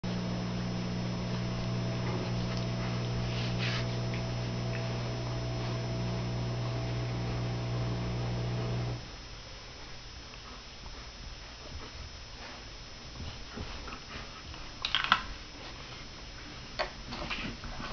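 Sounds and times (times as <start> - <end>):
steady hum: 0.0 - 13.6.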